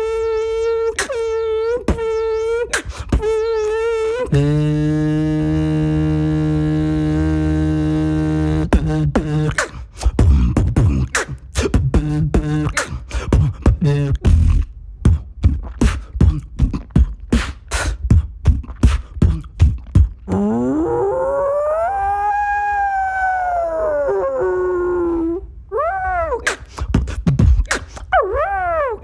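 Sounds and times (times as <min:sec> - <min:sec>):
beatboxing drum pattern: 0:00.0 - 0:20.4, 0:26.4 - 0:28.1
hummed low drone: 0:04.3 - 0:09.5
voiced howl rising in pitch: 0:20.3 - 0:26.4.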